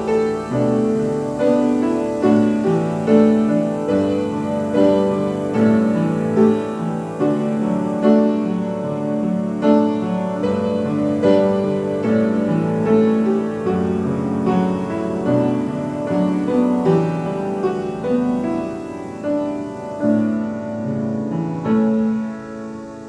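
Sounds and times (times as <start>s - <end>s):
slow piano chords: 0.0s - 23.0s.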